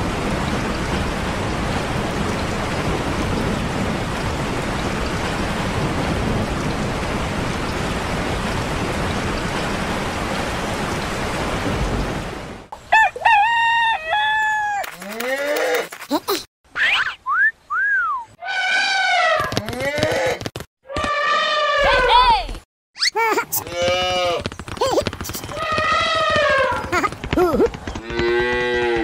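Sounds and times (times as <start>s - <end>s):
heavy rain: 0.0s - 12.7s
rooster crowing: 12.9s - 14.8s.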